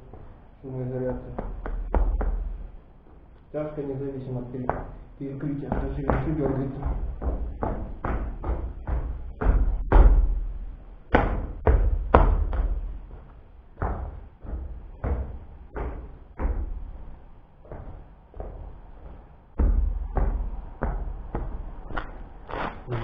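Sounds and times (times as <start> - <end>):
knocks and thuds: 5.6 - 22.3.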